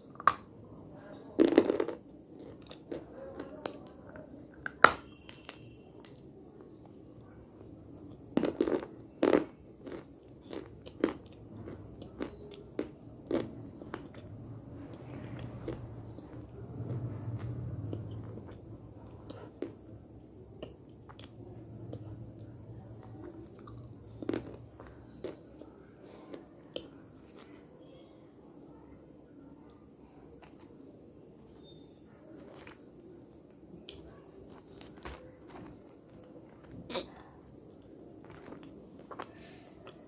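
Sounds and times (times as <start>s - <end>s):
person chewing: 1.4s - 27.6s, 32.4s - 40.0s.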